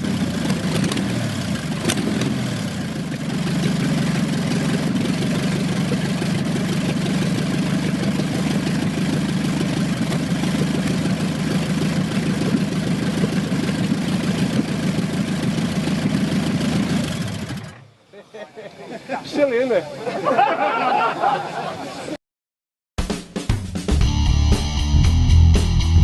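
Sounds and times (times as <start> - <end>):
aero engine idling: 0.0 - 18.1.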